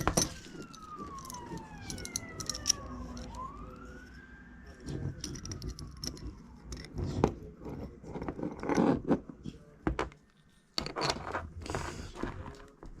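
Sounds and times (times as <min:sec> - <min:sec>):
clicks of small parts handled: 0:00.0 - 0:03.5, 0:05.1 - 0:07.0
siren wailing: 0:00.0 - 0:07.0.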